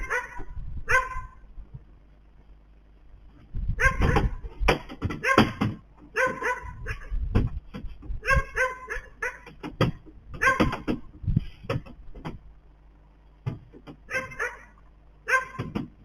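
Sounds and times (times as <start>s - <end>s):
dog barking: 0.0s - 1.4s, 3.8s - 4.4s, 5.2s - 7.1s, 8.2s - 9.5s, 10.4s - 10.9s, 14.1s - 15.7s.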